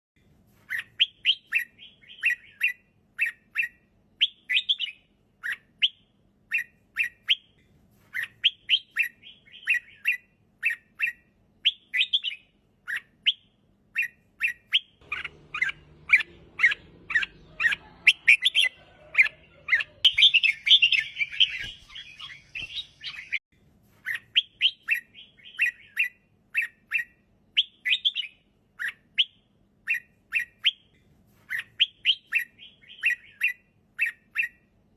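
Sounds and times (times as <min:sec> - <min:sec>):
bird singing short chirping phrases: 0:00.7 - 0:23.4, 0:24.0 - 0:34.6
dense high bird chatter: 0:15.0 - 0:23.4.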